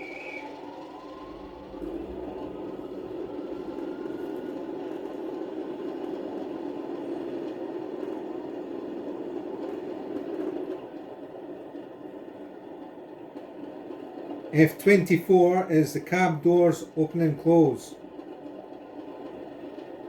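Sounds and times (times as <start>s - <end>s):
model diesel engine idling sound: 0.0s - 5.4s.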